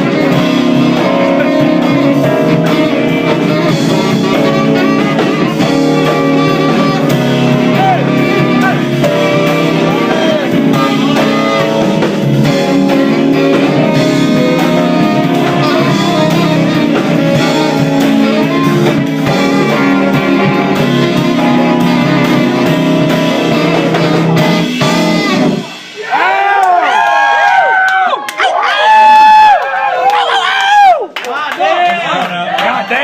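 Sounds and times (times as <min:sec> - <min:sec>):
live band with guitar: 0:00.0 - 0:26.0.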